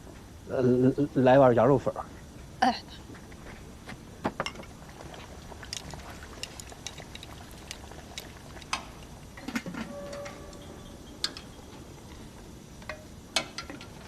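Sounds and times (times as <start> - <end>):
soft liquid sounds: 4.7 - 10.7.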